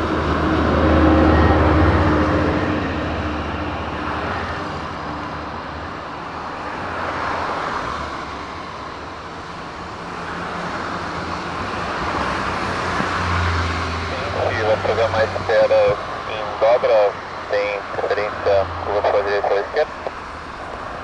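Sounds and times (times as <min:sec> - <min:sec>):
distant traffic hiss: 0:08.9 - 0:21.0.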